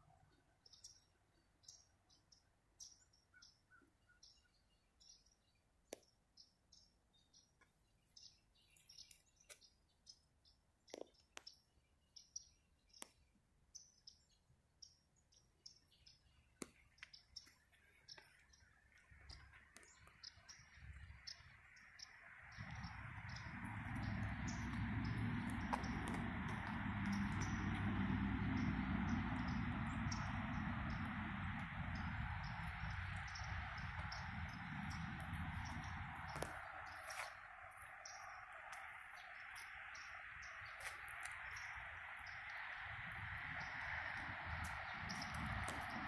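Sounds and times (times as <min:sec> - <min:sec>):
small birds chirping: 0:00.0 - 0:46.0
rushing noise with low rumble: 0:20.4 - 0:46.0.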